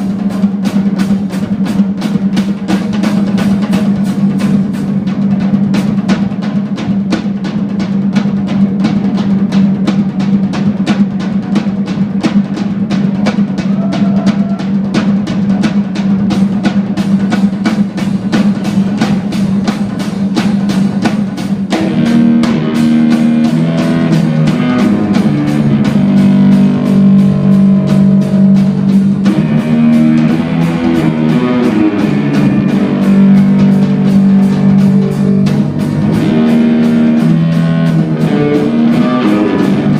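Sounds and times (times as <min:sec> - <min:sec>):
bass guitar: 0:00.0 - 0:39.9
fast busy drumming: 0:00.0 - 0:39.9
melodic rock guitar lines: 0:21.8 - 0:39.9.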